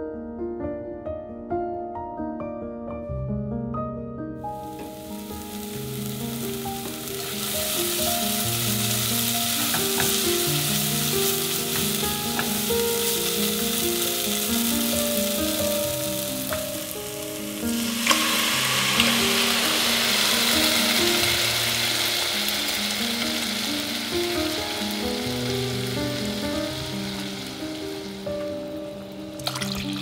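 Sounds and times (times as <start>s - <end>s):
curry paste sizzling in oil: 4.6s - 30.0s
liquid pouring onto hot paste: 17.8s - 22.8s, 29.4s - 30.0s.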